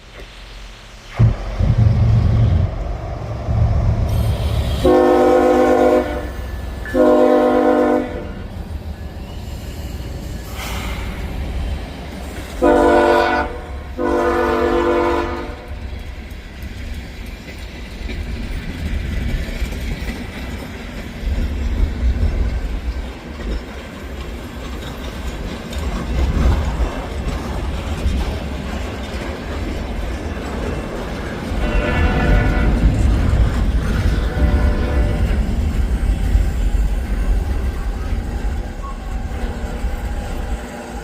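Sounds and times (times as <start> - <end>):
train rumbling: 0.0 - 41.0
locomotive horn blasts: 4.8 - 8.5, 12.6 - 15.7, 31.6 - 33.0, 34.2 - 35.4.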